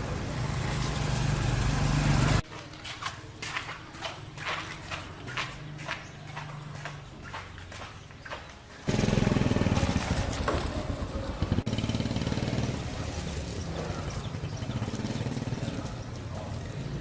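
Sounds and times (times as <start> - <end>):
motorcycle engine running: 8.8 - 17.0.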